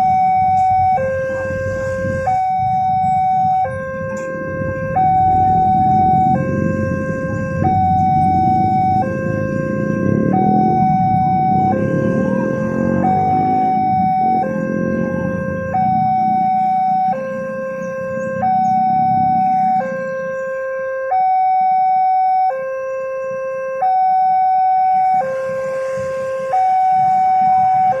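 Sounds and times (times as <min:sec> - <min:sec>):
two-tone crossing alarm: 0:00.0 - 0:28.0.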